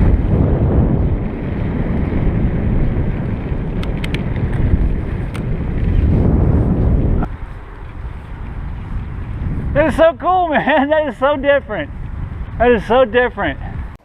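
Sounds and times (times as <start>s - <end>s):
wind buffeting microphone: 0.0s - 14.0s
faint clicks: 3.8s - 4.6s.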